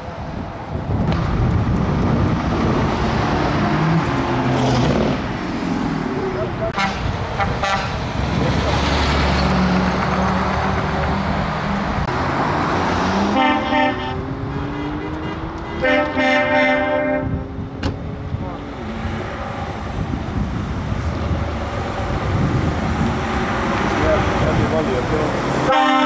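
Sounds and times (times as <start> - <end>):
diesel truck engines running: 0.1 - 26.0
truck air horn blasts: 6.8 - 8.0, 13.2 - 17.4, 25.6 - 26.0.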